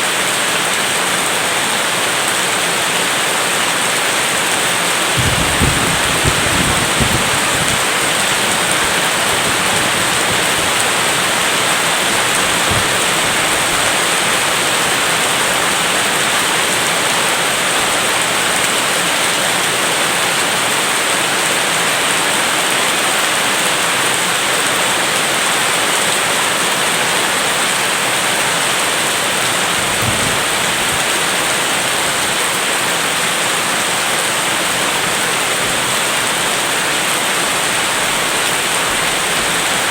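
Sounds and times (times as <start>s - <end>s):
heavy rain falling: 0.0s - 39.9s
low thumps: 5.2s - 10.8s.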